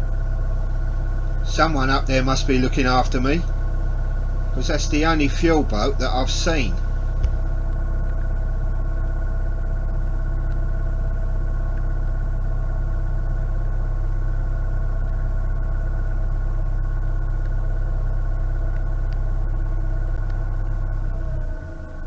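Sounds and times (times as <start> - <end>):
diesel boat engine rumbling: 0.0 - 22.0
steady hum: 0.0 - 22.0.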